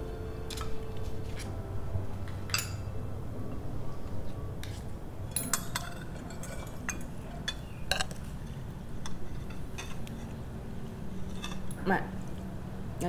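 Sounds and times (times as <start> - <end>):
low steady hum: 0.0 - 13.0
cutlery clinking against plates: 2.5 - 2.9, 4.7 - 8.3, 9.0 - 10.4.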